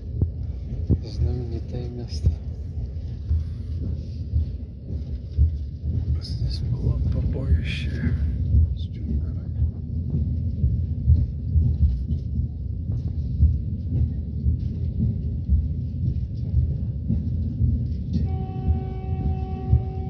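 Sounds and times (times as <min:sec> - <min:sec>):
train rumble inside carriage: 0:00.0 - 0:20.0
train horn long note: 0:18.2 - 0:20.0.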